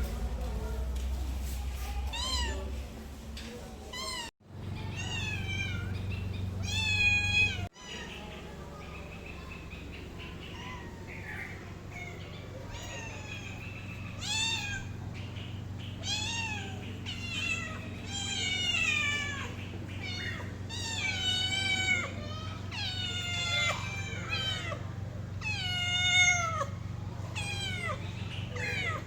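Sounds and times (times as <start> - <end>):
steady low hum: 0.0 - 29.0
cat meowing: 3.9 - 6.0, 6.6 - 8.3, 10.5 - 15.0, 16.0 - 29.0.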